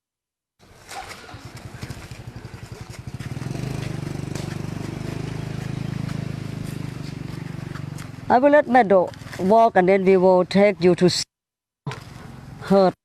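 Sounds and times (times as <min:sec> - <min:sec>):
engine starting up: 0:00.6 - 0:03.9.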